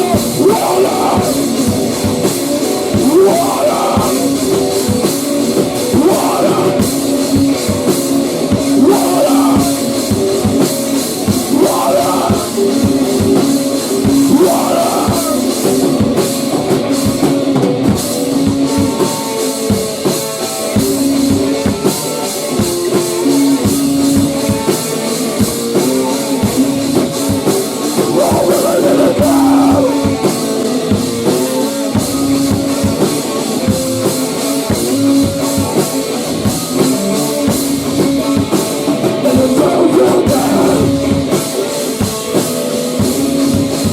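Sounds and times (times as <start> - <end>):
drum kit: 0.0 - 43.9.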